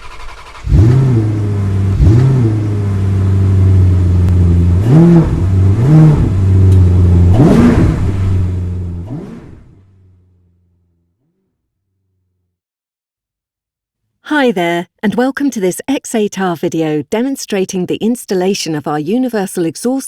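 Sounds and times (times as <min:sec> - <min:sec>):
car engine idling and revving: 0:00.0 - 0:12.5.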